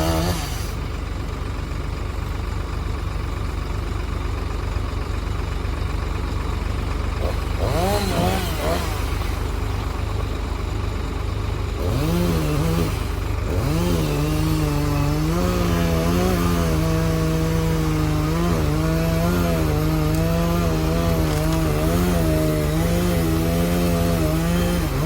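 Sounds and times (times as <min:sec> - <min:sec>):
tractor engine working hard: 0:00.0 - 0:25.0.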